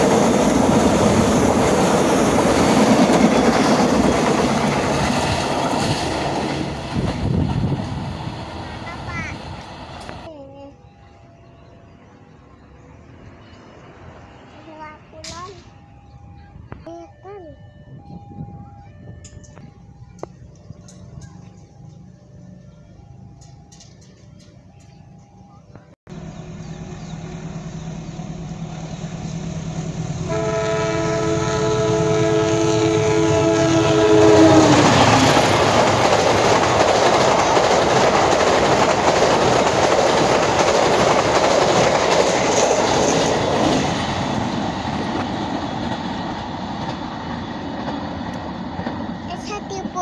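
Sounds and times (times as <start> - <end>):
train wheel and rail noise: 0.0 - 50.0
locomotive air horn chord: 30.2 - 34.8.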